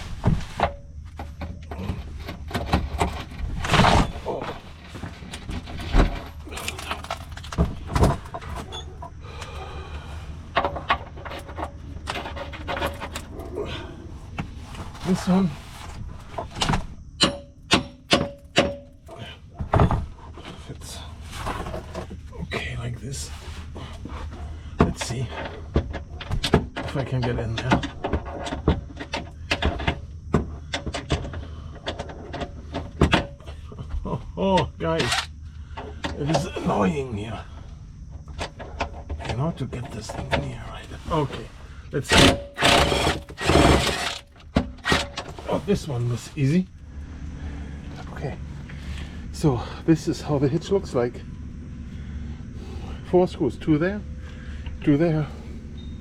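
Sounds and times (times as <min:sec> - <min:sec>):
low hum: 0:00.0 - 0:56.0
clattering knocks: 0:16.2 - 0:20.2.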